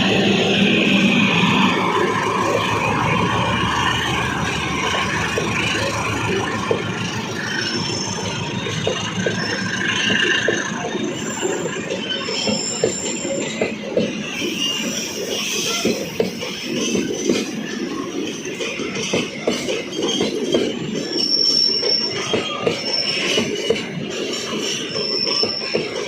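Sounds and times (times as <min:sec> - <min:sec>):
high wheel squeals: 0:00.0 - 0:18.8, 0:19.7 - 0:26.0
train wheels clacking on rails: 0:00.0 - 0:26.0.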